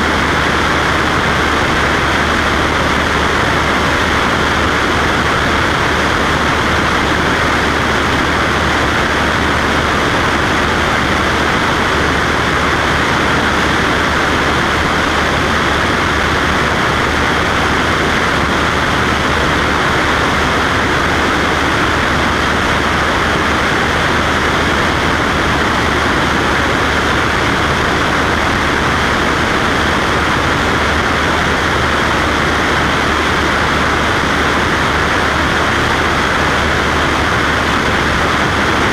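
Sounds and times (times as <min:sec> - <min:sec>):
airplane engine and propeller drone: 0:00.0 - 0:38.9.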